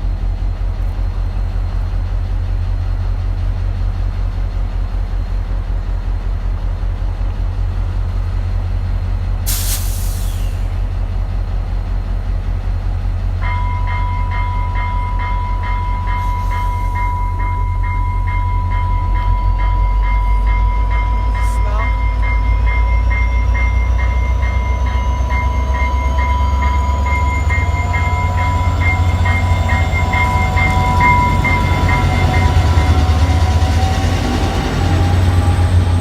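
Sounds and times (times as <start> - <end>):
diesel locomotive idling: 0.0 - 36.0
air brake hiss: 9.5 - 10.9
electronic warning bell ringing: 13.4 - 33.9.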